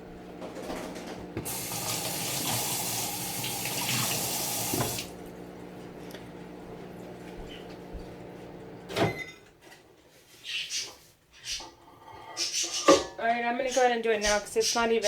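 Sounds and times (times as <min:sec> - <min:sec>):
tap running into sink: 0:01.4 - 0:05.1.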